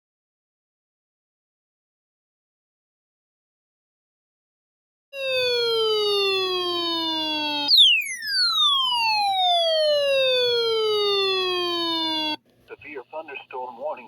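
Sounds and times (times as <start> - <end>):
electronic alert tone: 5.2 - 12.4
siren-like sweeping tone: 5.2 - 12.4.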